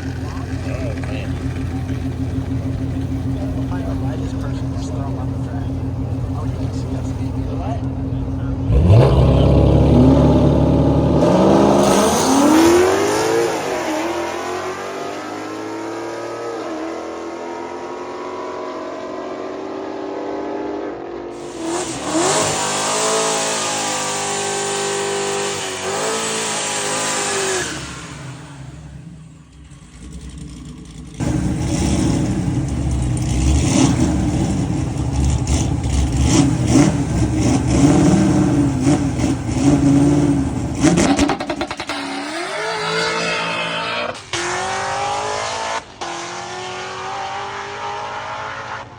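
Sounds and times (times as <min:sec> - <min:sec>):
loud car engine running: 0:00.0 - 0:20.5, 0:21.3 - 0:48.9
race car engines accelerating: 0:00.0 - 0:48.9.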